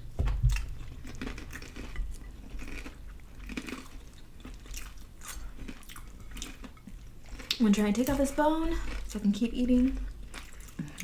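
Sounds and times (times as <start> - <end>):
crunchy wet chewing: 0.3 - 7.8.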